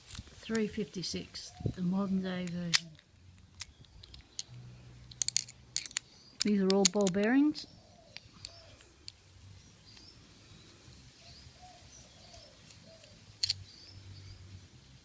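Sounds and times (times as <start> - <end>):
small metal parts clicking: 2.4 - 9.2, 12.3 - 13.7.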